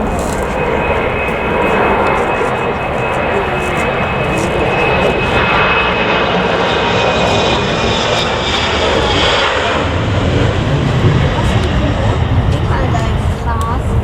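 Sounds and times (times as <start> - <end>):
faint high whine: 0.0 - 12.7
jet engines roaring: 0.0 - 14.0.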